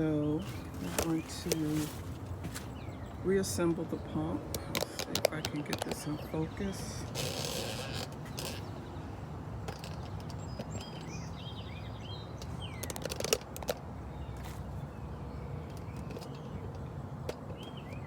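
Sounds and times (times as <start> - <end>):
low outdoor rumble: 0.0 - 12.8
small birds chirping: 0.0 - 18.0.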